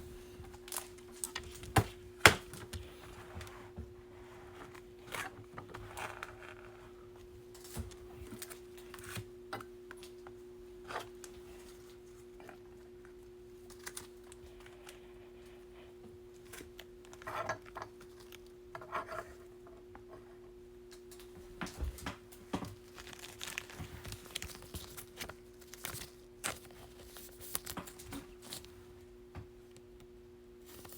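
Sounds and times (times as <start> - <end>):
steady background hum: 0.0 - 30.9
cards clicking and rustling: 22.5 - 28.7.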